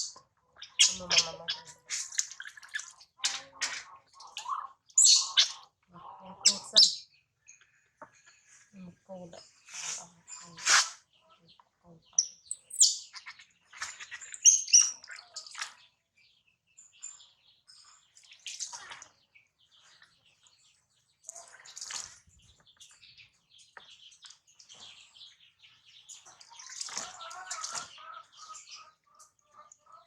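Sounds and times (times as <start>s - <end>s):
water sloshing and splashing: 0.6s - 4.9s, 13.1s - 16.0s, 18.0s - 22.7s, 25.7s - 30.0s.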